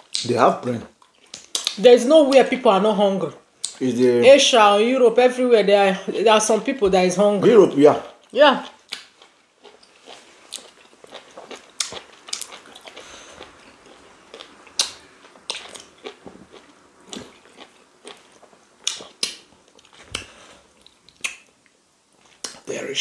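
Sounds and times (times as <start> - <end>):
chewing with wet mouth clicks: 0.0 - 0.3, 0.9 - 2.5, 3.6 - 3.8, 8.0 - 22.7.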